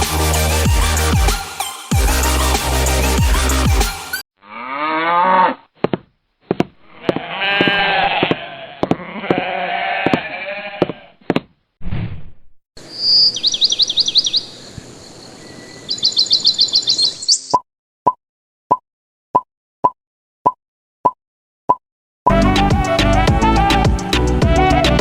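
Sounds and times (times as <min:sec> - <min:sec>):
farm animals bleating: 0:04.4 - 0:05.6, 0:06.8 - 0:11.2
high bird chirps: 0:12.8 - 0:17.6.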